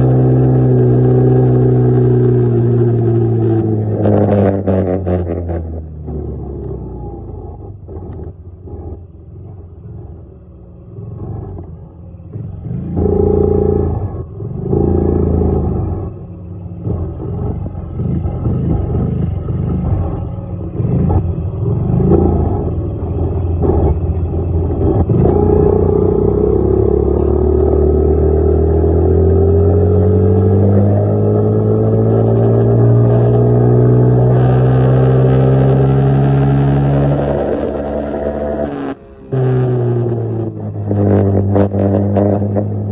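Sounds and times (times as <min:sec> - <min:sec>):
dirt bike engine revving: 0:24.7 - 0:42.9.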